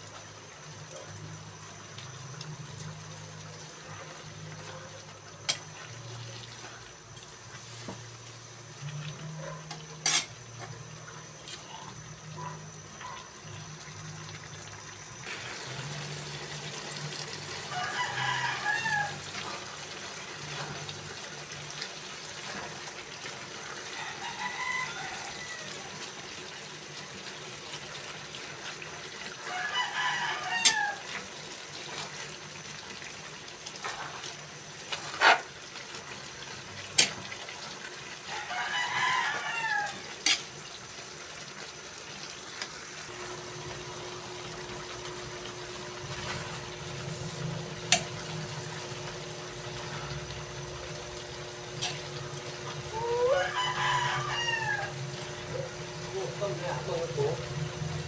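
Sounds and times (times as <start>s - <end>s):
rooster crowing: 17.6s - 19.6s, 23.8s - 26.1s, 29.4s - 31.2s, 38.2s - 40.2s, 52.8s - 57.4s.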